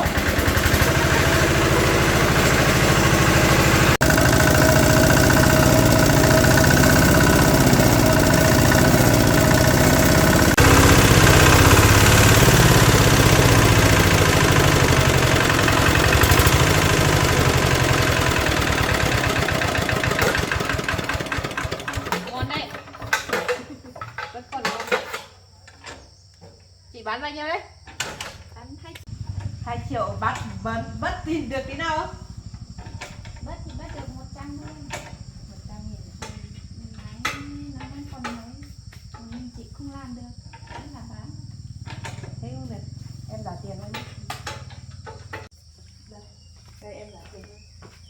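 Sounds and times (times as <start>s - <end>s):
single-cylinder diesel engine running: 0.0s - 23.5s, 28.3s - 45.5s.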